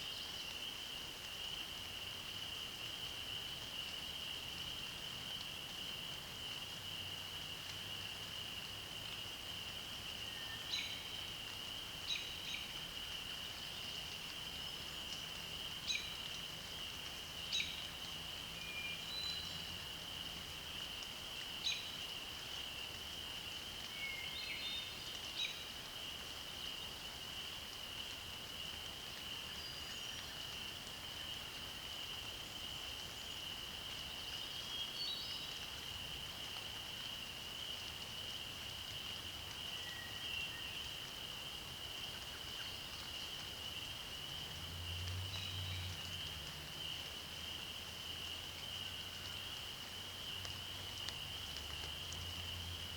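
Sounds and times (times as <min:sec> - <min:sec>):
faint bird song notes: 0:38.9 - 0:41.1.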